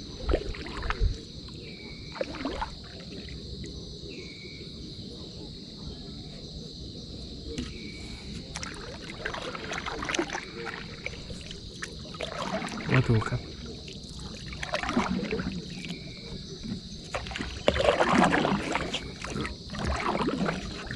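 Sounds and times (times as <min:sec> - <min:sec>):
high insect drone: 0:00.0 - 0:20.9
low rumble of water: 0:00.0 - 0:20.9
wind: 0:00.0 - 0:20.9.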